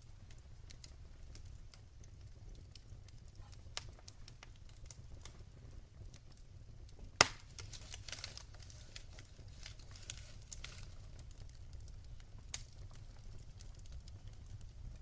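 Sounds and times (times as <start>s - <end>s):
wood fire crackling: 0.0s - 15.0s
loud pop of fire: 6.9s - 11.3s.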